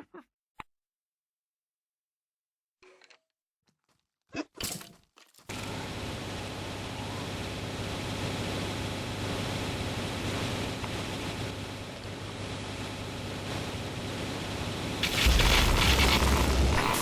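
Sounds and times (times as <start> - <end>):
low hum: 15.0 - 17.0
steady rushing noise: 15.0 - 17.0.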